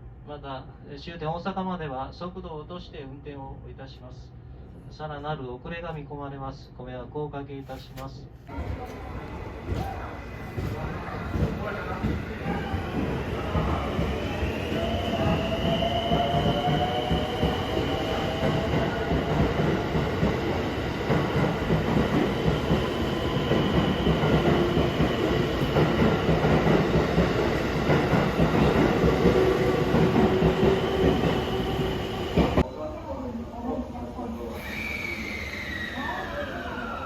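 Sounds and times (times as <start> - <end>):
train wheels on rail: 8.5 - 32.7.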